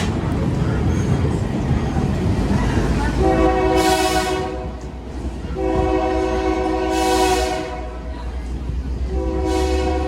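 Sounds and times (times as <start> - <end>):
moving train rumble: 0.0 - 10.0
train horn chord blasts: 5.6 - 7.9, 9.1 - 10.0.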